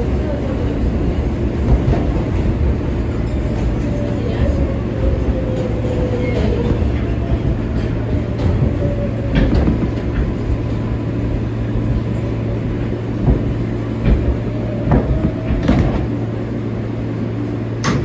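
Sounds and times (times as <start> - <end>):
wheels clacking over rail joints: 0.0 - 16.4
subway car rumbling: 0.0 - 18.0.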